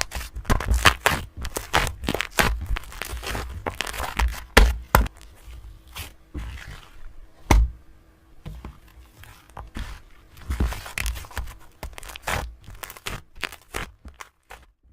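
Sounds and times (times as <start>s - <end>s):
paper crinkling and tearing: 0.0s - 4.6s, 8.9s - 14.8s.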